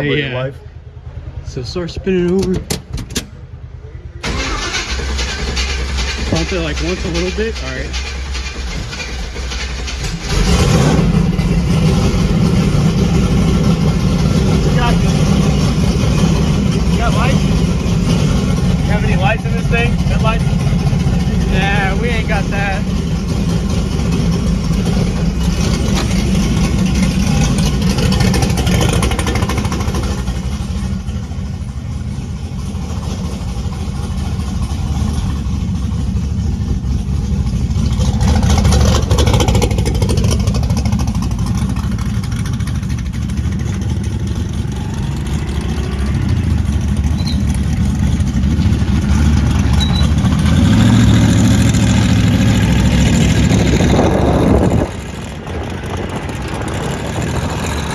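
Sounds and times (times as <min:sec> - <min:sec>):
truck engine idling: 0:00.0 - 0:57.9.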